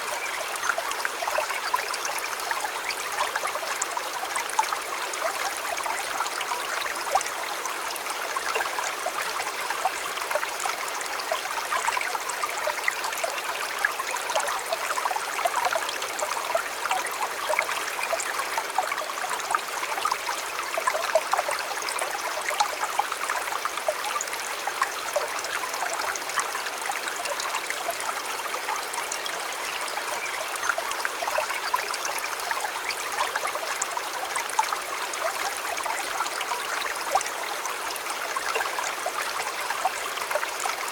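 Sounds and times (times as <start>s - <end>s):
stream trickling over rocks: 0.0s - 40.9s.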